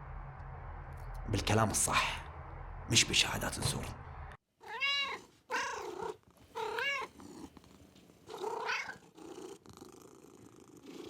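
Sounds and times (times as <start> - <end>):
cat meowing: 4.6 - 7.2, 8.3 - 9.0
low purr: 5.6 - 11.0.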